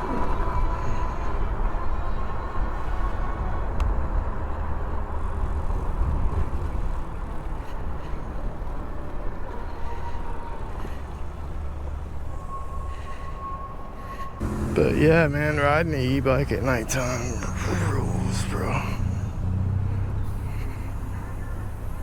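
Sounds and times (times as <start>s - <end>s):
electric motor whine: 14.4s - 15.3s.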